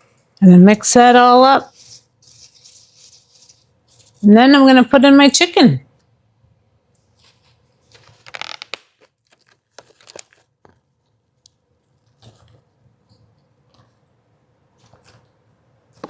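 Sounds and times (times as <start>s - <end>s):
plastic packaging crinkling: 7.2s - 10.8s.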